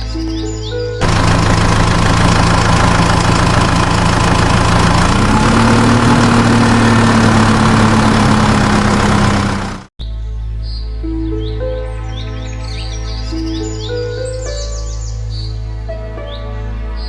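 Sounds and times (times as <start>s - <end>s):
engine idling: 0.0s - 9.9s.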